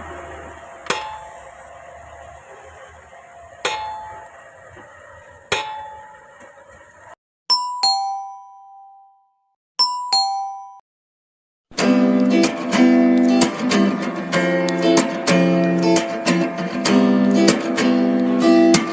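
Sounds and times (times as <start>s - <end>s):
sharp knocks: 0.9s - 1.4s, 3.6s - 4.3s, 5.5s - 6.1s
ding-dong chime: 7.5s - 10.8s.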